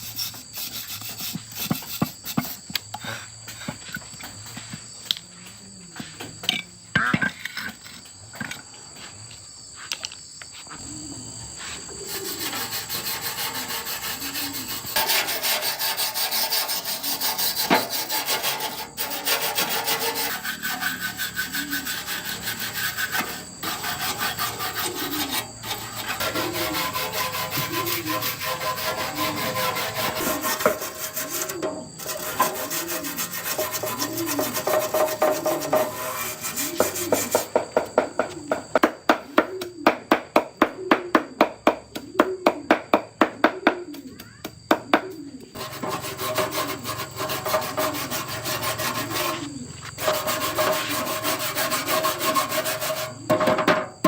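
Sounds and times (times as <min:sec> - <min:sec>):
hand scraping strokes: 0:00.0 - 0:04.8, 0:11.6 - 0:37.6, 0:45.5 - 0:53.4.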